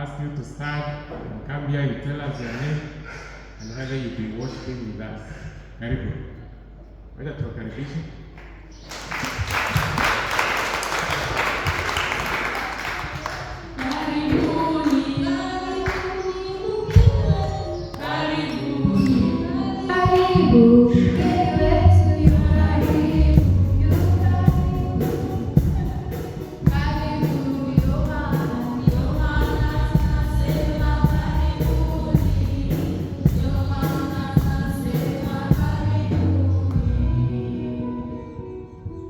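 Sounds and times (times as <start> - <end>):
congregation and choir singing: 11.0 - 39.0
steady beat: 19.9 - 35.9.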